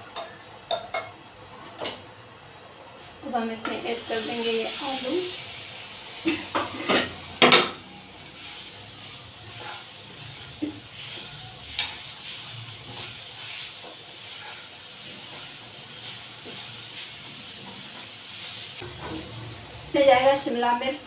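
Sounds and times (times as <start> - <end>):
potatoes sizzling in a frying pan: 3.2 - 21.0.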